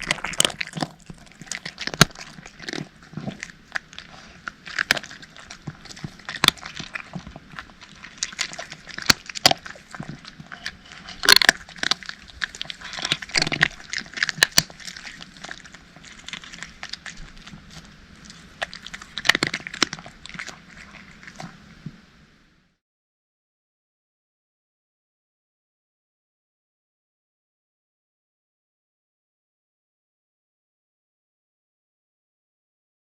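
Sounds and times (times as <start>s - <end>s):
cats crunching dry kibble: 0.0s - 21.9s.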